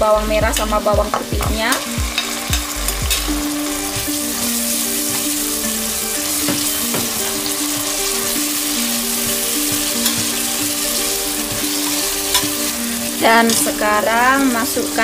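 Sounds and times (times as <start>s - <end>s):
simple background melody: 0.0s - 15.0s
vegetables sizzling in hot oil: 0.5s - 15.0s
metal spatula stirring and tapping: 1.1s - 14.0s.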